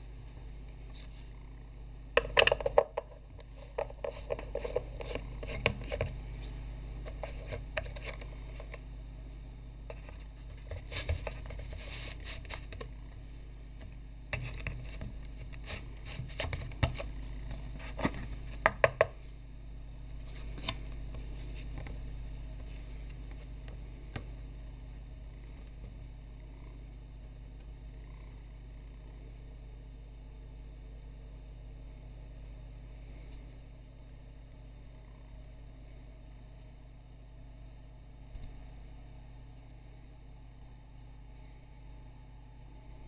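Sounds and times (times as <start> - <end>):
steady low hum: 0.0 - 43.0
clicks knocks and scrapes: 2.2 - 6.2, 7.0 - 8.8, 14.3 - 17.1.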